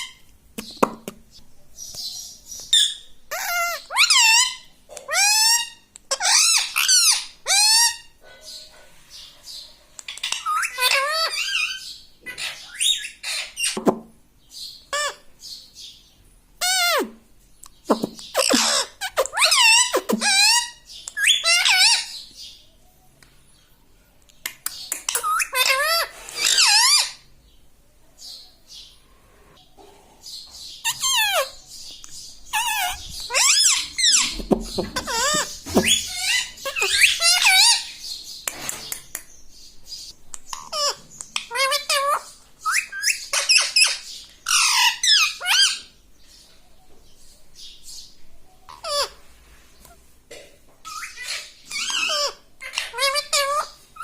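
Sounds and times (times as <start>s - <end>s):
parrot whistling and squawking: 2.7s - 8.2s, 10.1s - 13.8s, 17.9s - 22.1s, 25.0s - 27.2s, 30.8s - 31.5s, 32.5s - 38.0s, 40.5s - 45.9s, 50.8s - 54.0s.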